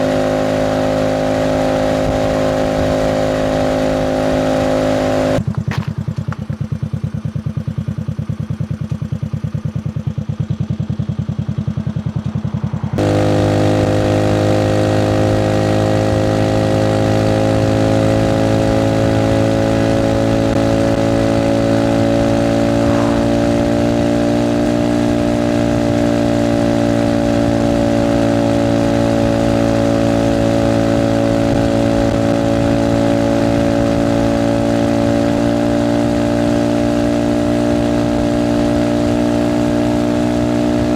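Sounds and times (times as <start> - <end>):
moped engine putter: 5.4 - 7.0.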